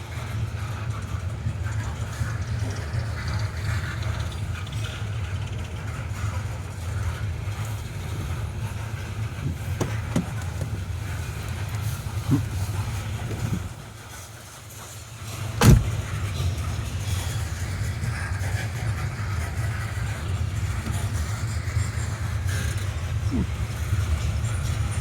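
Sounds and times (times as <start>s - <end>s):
train cars rumbling on rails: 0.0s - 25.0s
metal clanks: 15.4s - 16.2s.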